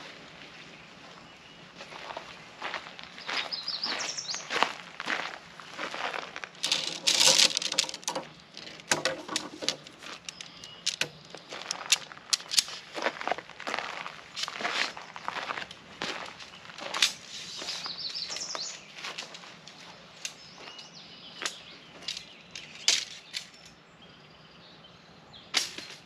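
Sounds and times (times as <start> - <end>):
camping gear clicking and rattling: 5.7 - 23.8
sharp clicks and light knocks: 6.6 - 13.2.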